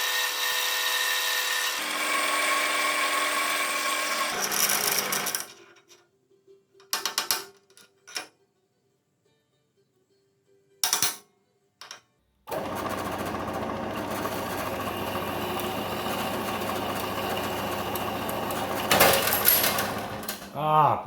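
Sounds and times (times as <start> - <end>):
electric metalworking tool buzzing: 0.0 - 5.6, 12.5 - 20.6.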